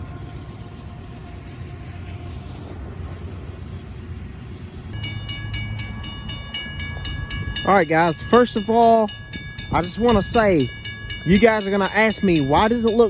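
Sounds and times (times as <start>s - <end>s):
diesel train rumble: 0.0s - 13.0s
crossing bell ringing rapidly: 5.0s - 13.0s.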